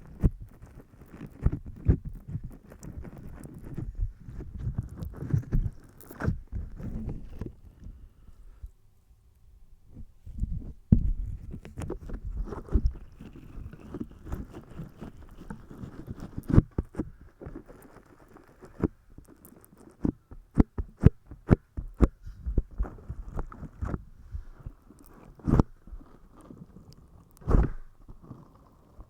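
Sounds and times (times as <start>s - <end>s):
crisp clicks: 0.0s - 7.5s, 11.5s - 24.0s, 24.6s - 29.0s
soft handling noise: 0.0s - 29.0s.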